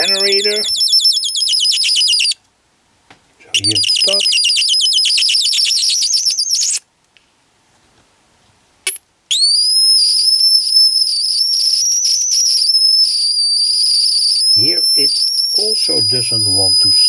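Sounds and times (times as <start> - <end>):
electronic bird chirps: 0.0 - 2.4, 3.6 - 6.8, 9.3 - 17.0
steady high whistle: 0.0 - 2.4, 3.5 - 6.8, 9.3 - 17.0.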